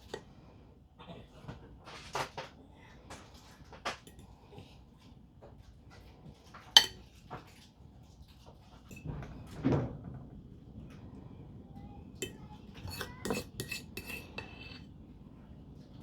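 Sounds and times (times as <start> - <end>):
metal utensil clinking against bowl: 6.8 - 7.0, 12.2 - 14.8.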